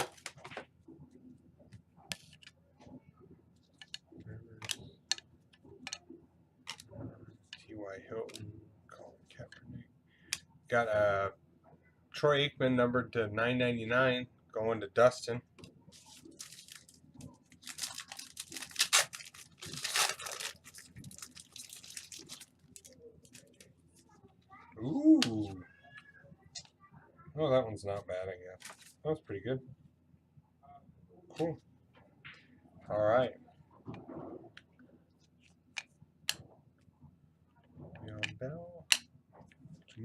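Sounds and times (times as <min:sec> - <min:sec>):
wrapper tearing and crinkling: 0:16.0 - 0:23.6
card packaging rustling: 0:16.0 - 0:23.7.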